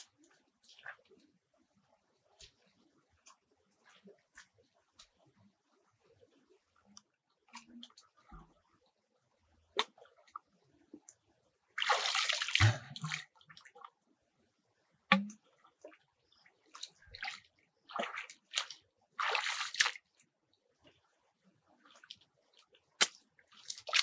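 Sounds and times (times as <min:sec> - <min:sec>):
water sloshing and splashing: 0:11.8 - 0:13.9, 0:16.6 - 0:20.1, 0:23.5 - 0:24.0.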